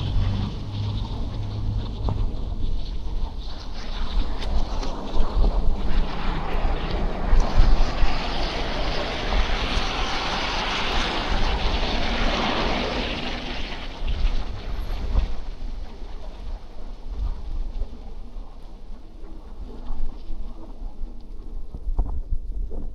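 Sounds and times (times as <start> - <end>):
vehicle passing in traffic: 0.0 - 3.4, 6.4 - 15.4
wind buffeting microphone: 0.0 - 22.9.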